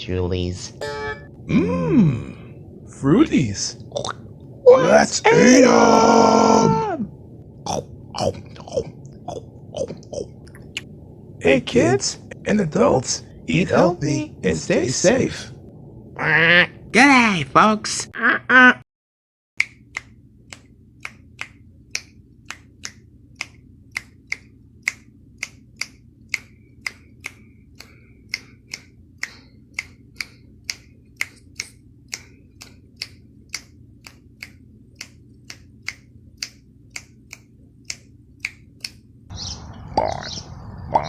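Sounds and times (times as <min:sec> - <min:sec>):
faint low hum: 0:00.0 - 0:18.1
sharp snaps or clicks: 0:19.6 - 0:39.0.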